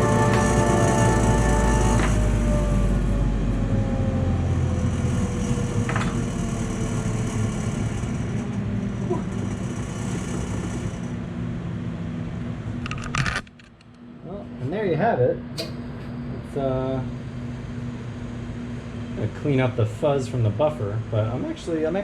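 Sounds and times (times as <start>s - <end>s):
lathe motor coasting down: 0.0s - 11.2s.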